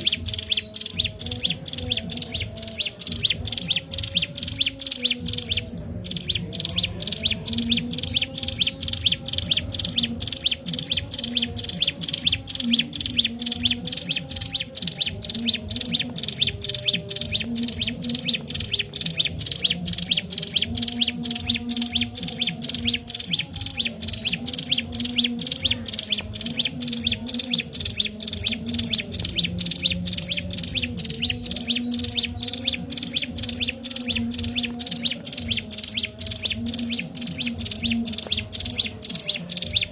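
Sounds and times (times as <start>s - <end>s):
bird chattering high notes: 0.0s - 39.9s.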